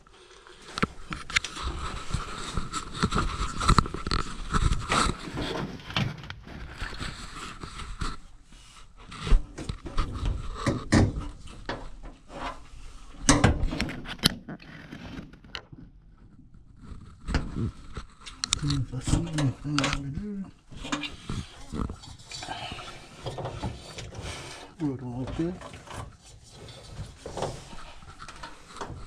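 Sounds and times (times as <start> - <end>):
knocks and scrapes on washer: 25.6 - 29.0.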